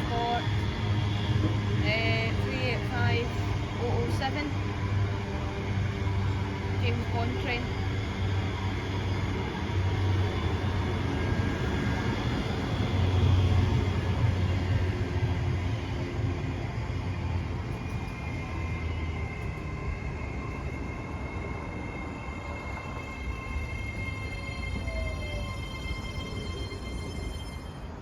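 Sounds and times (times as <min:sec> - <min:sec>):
electric train rumbling: 0:00.0 - 0:28.0.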